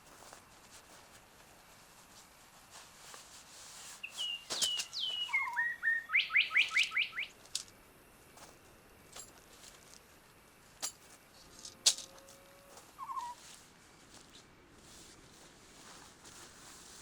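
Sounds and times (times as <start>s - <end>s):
songbird singing: 4.0s - 7.8s, 11.3s - 13.4s.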